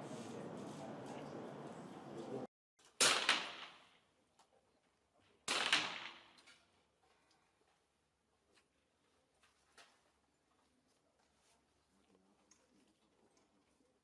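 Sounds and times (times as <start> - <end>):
sharp ringing bangs: 3.0 - 3.8.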